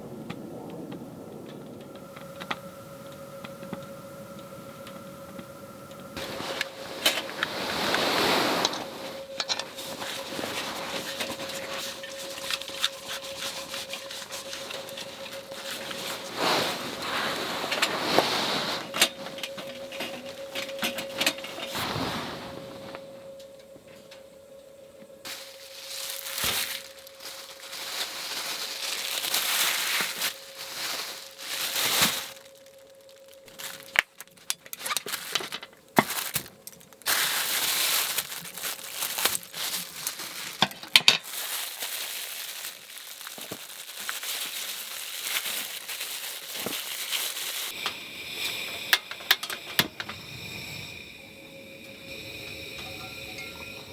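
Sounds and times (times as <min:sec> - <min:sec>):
faint steady tone: 0:00.0 - 0:34.0, 0:47.6 - 0:53.9
packaging crinkling and rustling: 0:01.6 - 0:23.4, 0:25.3 - 0:47.8.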